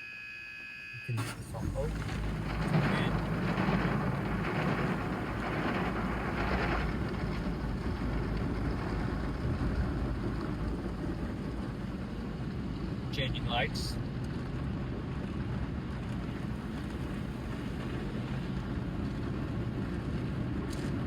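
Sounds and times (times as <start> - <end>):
car wash spray hissing on car: 1.2 - 13.5
low rumble: 1.2 - 21.0.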